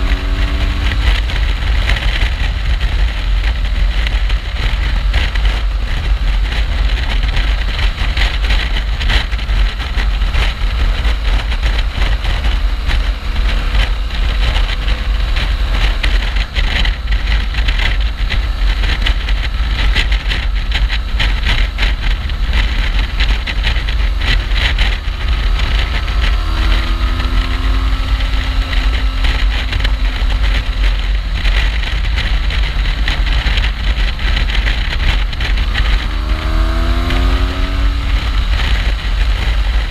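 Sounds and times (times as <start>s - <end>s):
motorcycle engine running: 0.0s - 39.9s
wind rumble on microphone: 0.0s - 39.9s.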